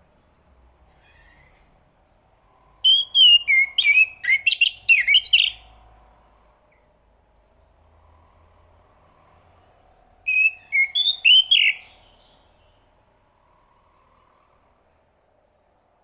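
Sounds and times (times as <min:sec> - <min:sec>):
thrush singing whistled notes: 0:02.4 - 0:06.9, 0:07.6 - 0:15.1.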